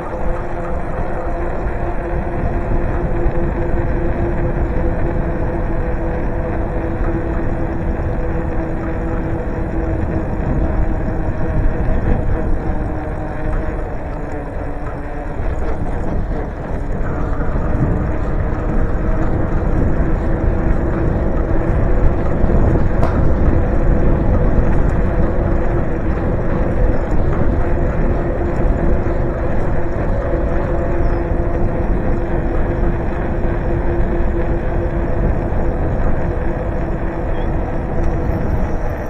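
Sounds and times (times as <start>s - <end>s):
road noise: 0.0s - 39.0s
steady hum: 0.0s - 39.0s
wind buffeting microphone: 0.0s - 39.0s.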